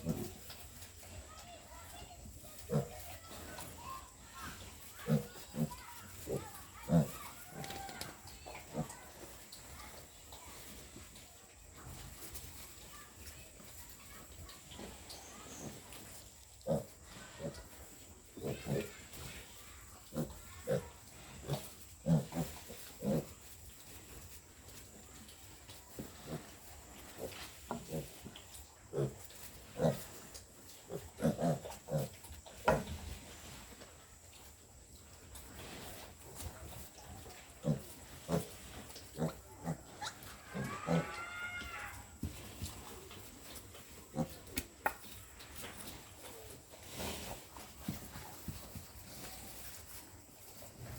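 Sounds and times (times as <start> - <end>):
piglets grunting: 2.6 - 3.8, 4.5 - 9.2, 16.6 - 17.8, 18.4 - 23.4, 30.9 - 32.8, 37.3 - 42.1
piglet squeal: 40.0 - 42.0.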